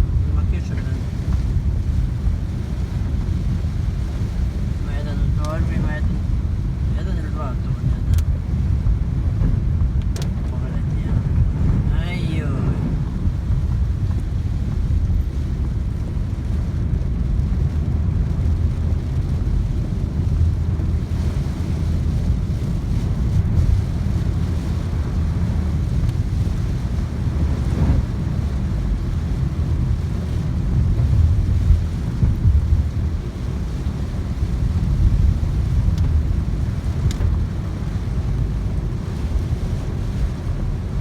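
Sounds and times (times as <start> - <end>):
heavy rain: 0.0 - 41.0
wind buffeting microphone: 0.0 - 41.0.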